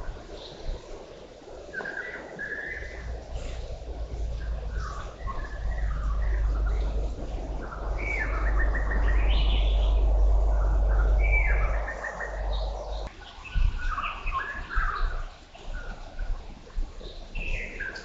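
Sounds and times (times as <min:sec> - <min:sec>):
birds chirping and trilling: 0:00.3 - 0:16.2
low rumble: 0:02.8 - 0:13.1.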